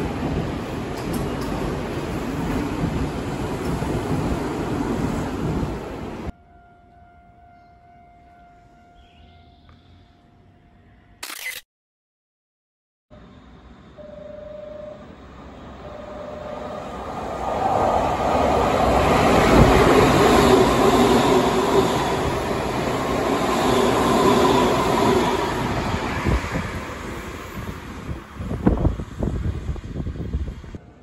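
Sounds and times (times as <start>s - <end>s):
electric train passing: 13.1s - 31.0s.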